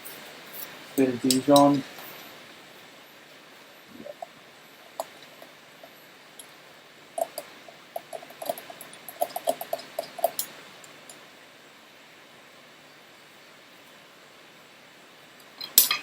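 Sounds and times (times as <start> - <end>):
kitchen utensils clinking: 0.0 - 2.4, 3.9 - 6.6, 7.2 - 11.2, 15.6 - 16.0.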